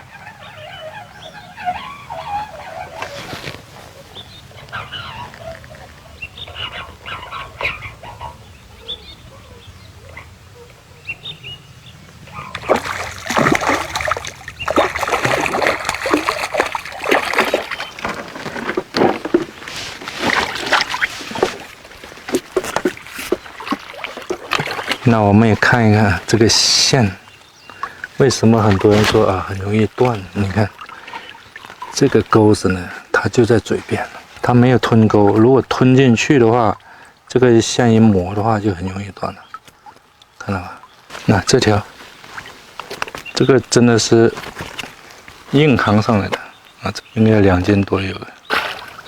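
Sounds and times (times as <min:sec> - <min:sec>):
fish splashing at water surface: 0:12.5 - 0:27.0.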